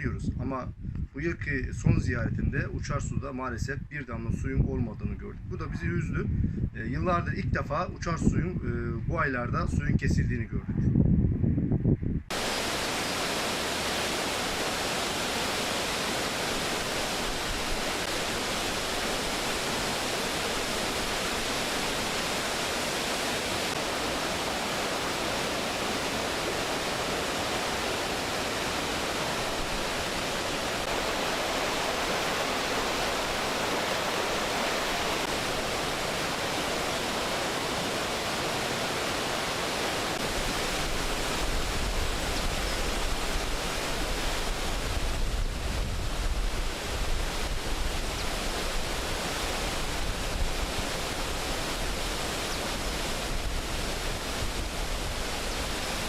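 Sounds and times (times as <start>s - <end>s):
wind rumble on microphone: 0.0s - 13.2s, 39.4s - 56.0s
steady rushing noise: 11.3s - 56.0s.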